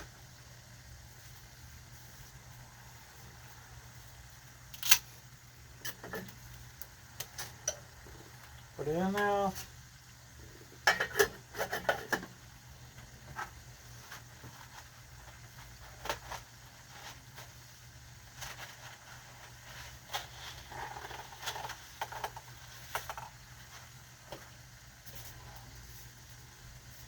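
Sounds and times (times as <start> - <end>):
faint steady hum: 0.0 - 27.0
cookware and utensils tapping: 10.8 - 12.3.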